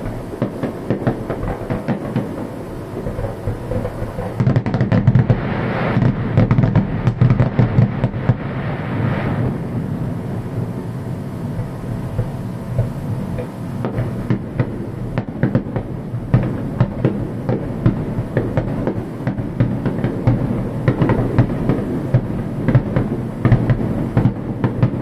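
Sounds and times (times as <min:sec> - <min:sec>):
fireworks bangs and crackles: 0:00.0 - 0:25.0
hissing crackle: 0:00.0 - 0:25.0
low rumble: 0:08.3 - 0:15.2.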